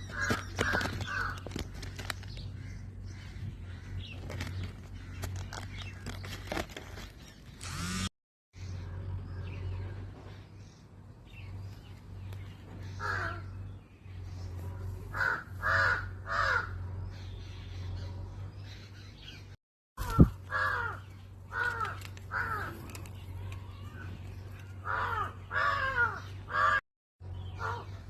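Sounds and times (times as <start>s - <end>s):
bird harsh calls: 0.0s - 8.0s, 12.6s - 28.0s.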